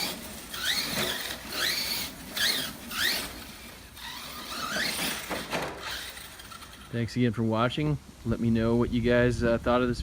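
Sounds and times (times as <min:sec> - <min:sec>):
electric motor whining: 0:00.0 - 0:06.9.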